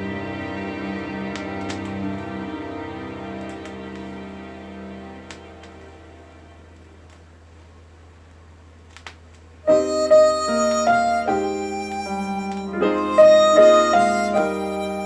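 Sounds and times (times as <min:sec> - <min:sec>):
low steady hum: 0:00.0 - 0:13.6
electric piano chords: 0:09.7 - 0:15.0
harmonica melody: 0:09.7 - 0:15.0.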